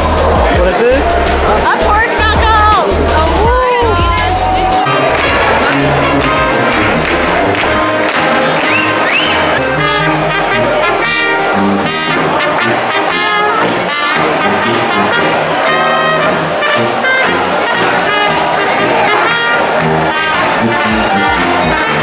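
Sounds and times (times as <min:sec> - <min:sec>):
brass band playing: 0:00.0 - 0:22.0
trumpet: 0:04.0 - 0:22.0
trombone: 0:04.9 - 0:22.0.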